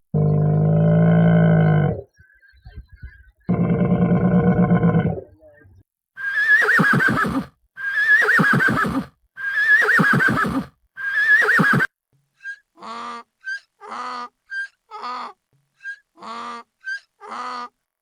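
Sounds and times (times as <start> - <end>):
low animal call: 0.1 - 2.1, 3.5 - 5.4
horse whinnying: 6.2 - 11.9.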